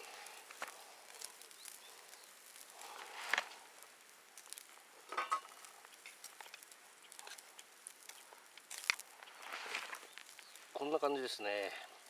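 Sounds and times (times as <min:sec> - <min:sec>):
faint sizzling: 0:00.0 - 0:12.0
metal utensil scraping a pot: 0:05.1 - 0:05.5.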